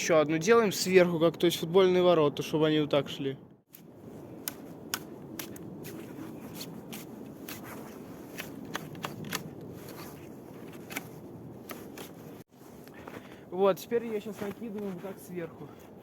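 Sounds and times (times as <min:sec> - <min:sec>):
footsteps crunching in snow: 0:03.8 - 0:16.0.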